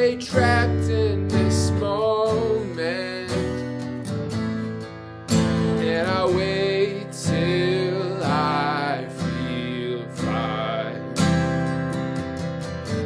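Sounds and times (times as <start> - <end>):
man singing with vibrato: 0.0 - 4.2, 5.4 - 11.4
acoustic guitar strumming: 0.0 - 13.0.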